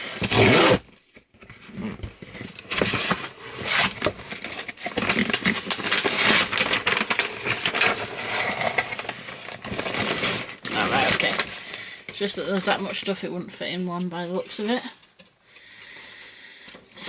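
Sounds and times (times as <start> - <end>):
cardboard box being opened: 0.0 - 11.7
rustling of packaging: 0.0 - 16.0.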